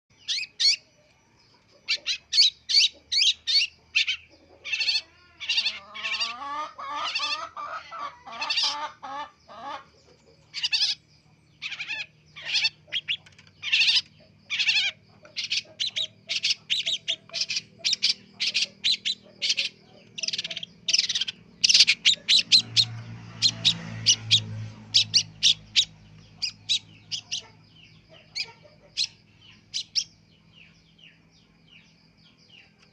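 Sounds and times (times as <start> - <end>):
bird harsh calls: 0.1 - 1.0, 1.7 - 31.2
bird warbling: 1.8 - 9.0, 10.5 - 11.0, 11.6 - 30.2.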